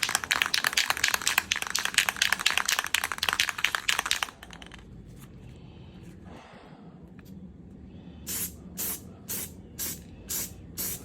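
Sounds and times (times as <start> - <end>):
spray can rattling: 0.0 - 4.8.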